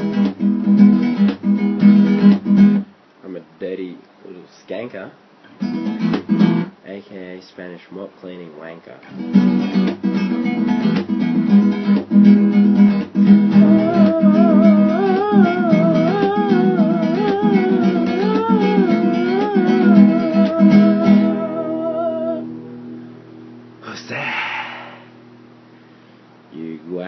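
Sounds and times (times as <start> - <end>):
strummed acoustic guitar: 0.0 - 2.9, 5.4 - 6.8, 9.0 - 23.1
wordless vocal with vibrato: 13.6 - 22.4, 23.8 - 25.2.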